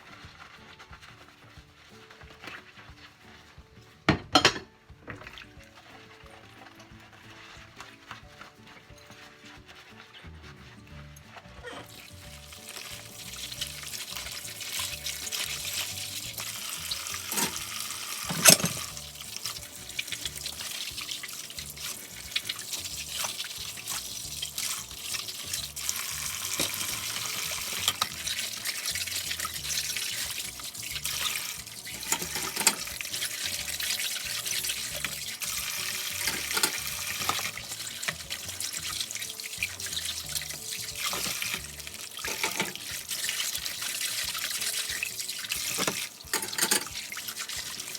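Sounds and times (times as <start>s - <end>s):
dishware clinking: 4.1s - 5.2s, 17.2s - 17.7s, 18.3s - 19.0s, 32.0s - 32.9s, 36.1s - 37.5s, 42.3s - 42.8s, 45.6s - 47.0s
tap running into sink: 12.4s - 47.9s.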